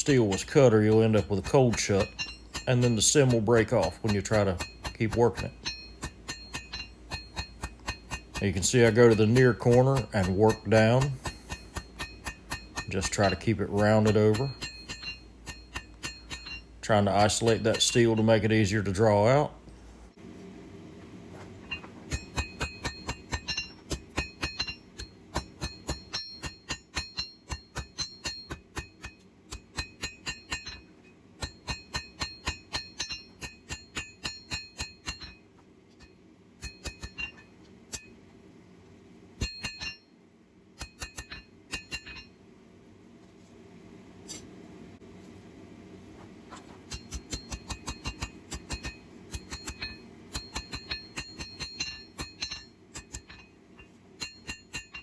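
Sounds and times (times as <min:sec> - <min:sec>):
hammer striking steel on anvil: 0:00.0 - 0:19.2, 0:21.6 - 0:38.2, 0:39.4 - 0:40.2, 0:40.8 - 0:42.4, 0:46.5 - 0:55.0
steady low hum: 0:00.0 - 0:55.0.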